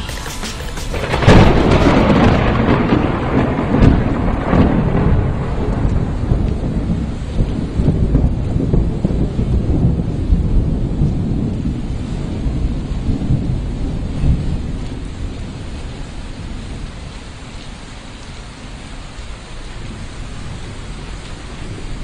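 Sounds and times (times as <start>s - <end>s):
thunder rumbling: 0.0s - 17.0s
rain falling: 0.0s - 22.0s.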